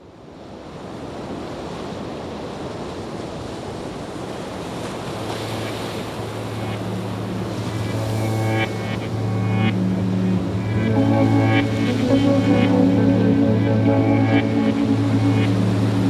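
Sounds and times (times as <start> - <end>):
steady rushing noise: 5.0 - 16.0
low drone intro music: 5.6 - 16.0.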